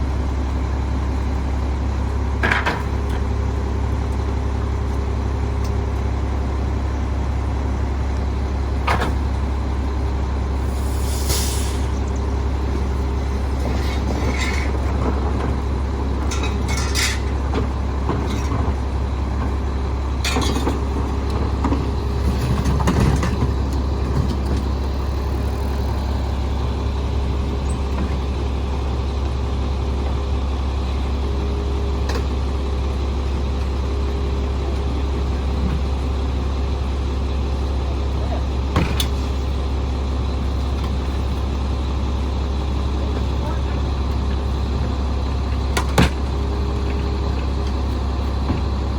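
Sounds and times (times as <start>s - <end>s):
garbage truck diesel engine: 0.0s - 48.9s
short air hiss: 10.6s - 12.0s
metallic clanks and knocks: 16.3s - 17.4s.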